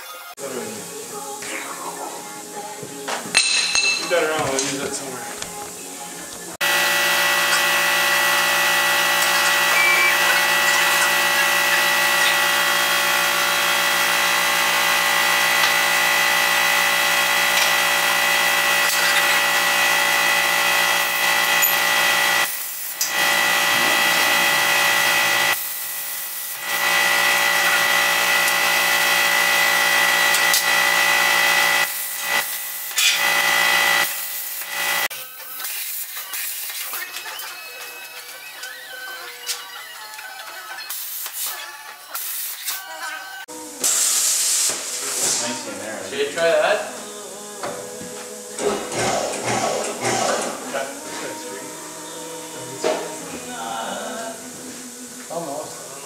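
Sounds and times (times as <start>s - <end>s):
power tool whining: 6.6s - 35.6s.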